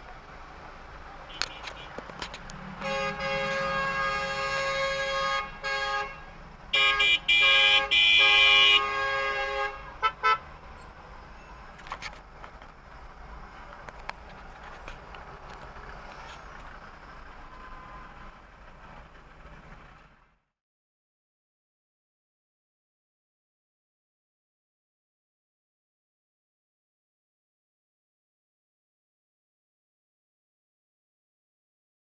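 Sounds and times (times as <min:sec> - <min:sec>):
road noise: 0:00.0 - 0:20.5
car horns honking: 0:01.1 - 0:12.1.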